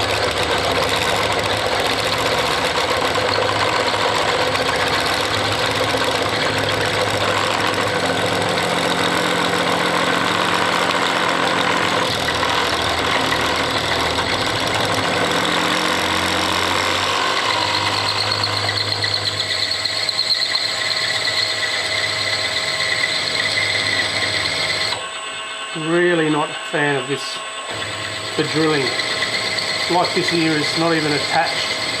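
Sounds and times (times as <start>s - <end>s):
drill squealing chatter: 0.0s - 32.0s
milling machine spindle running: 0.0s - 32.0s.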